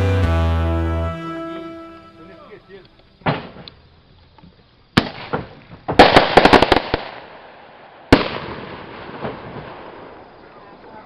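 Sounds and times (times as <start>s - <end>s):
fireworks bangs: 3.2s - 3.7s, 5.0s - 11.0s
rapid string of firework cracks: 5.0s - 10.4s.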